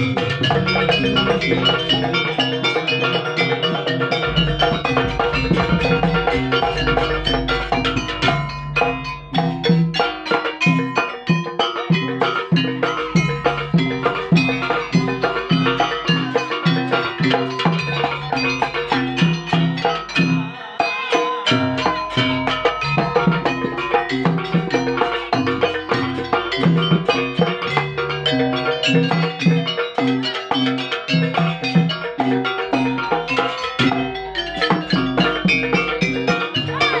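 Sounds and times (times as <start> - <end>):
repeating bass line: 0.0 - 10.0
drums and pitched percussion: 0.0 - 37.0.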